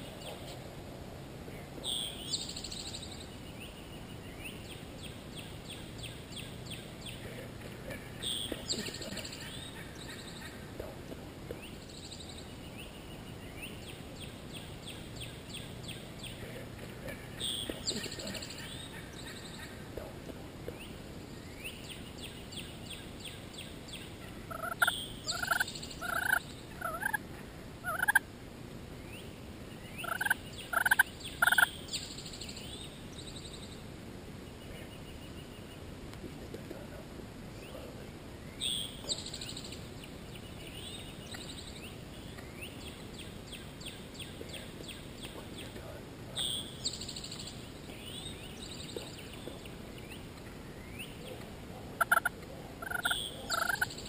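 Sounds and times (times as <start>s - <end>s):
small birds chirping: 1.5s - 28.2s, 28.9s - 54.0s
wild turkey calling: 24.2s - 28.2s, 30.0s - 31.8s, 52.0s - 54.0s.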